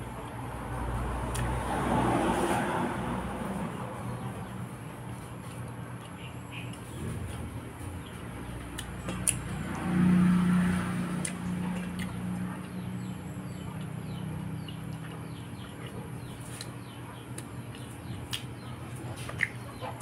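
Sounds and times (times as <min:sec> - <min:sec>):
small birds chirping: 0:03.6 - 0:20.0
lips smacking and chewing: 0:08.0 - 0:09.6, 0:11.1 - 0:12.8, 0:13.7 - 0:20.0.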